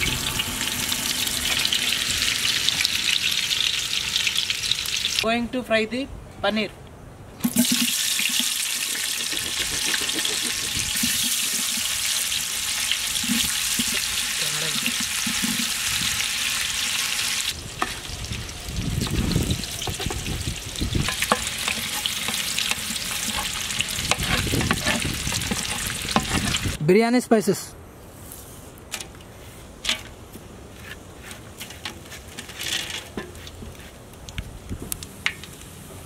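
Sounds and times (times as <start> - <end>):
food sizzling in hot butter: 0.0 - 5.2, 7.4 - 26.8
utensil scraping a metal pot: 7.7 - 11.9, 21.0 - 26.8.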